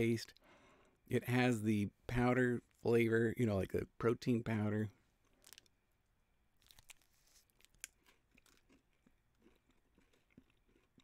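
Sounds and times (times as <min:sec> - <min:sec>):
man chewing: 0:06.6 - 0:11.0.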